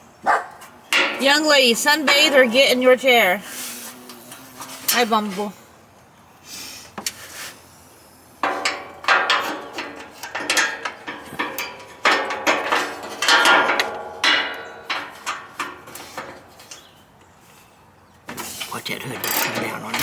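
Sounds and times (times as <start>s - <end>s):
sheet metal clanking and rattling: 0.9s - 2.8s, 8.4s - 16.9s, 18.3s - 20.0s.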